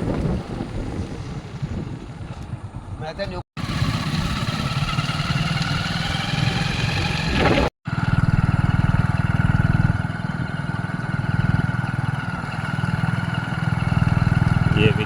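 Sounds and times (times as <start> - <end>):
small engine pulsing: 3.6 - 15.0.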